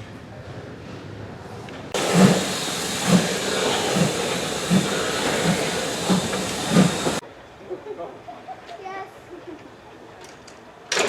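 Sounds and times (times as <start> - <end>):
steady hiss of steam: 2.0 - 7.2
steam locomotive exhaust beats: 2.0 - 7.2.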